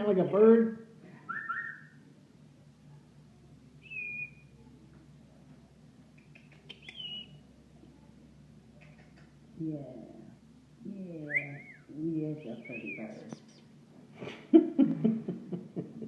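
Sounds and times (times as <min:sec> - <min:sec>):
parrot whistled calls: 0:01.3 - 0:02.0, 0:03.8 - 0:04.5, 0:06.7 - 0:07.4.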